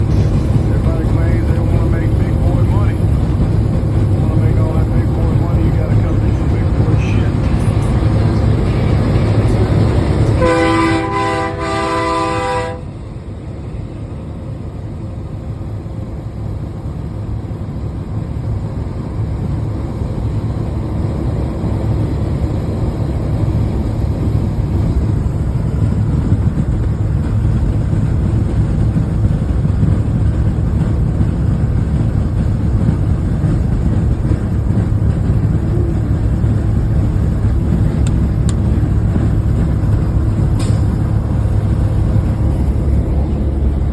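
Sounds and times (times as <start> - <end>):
heavy truck rumbling: 0.0 - 43.9
air horn chord: 10.4 - 12.9.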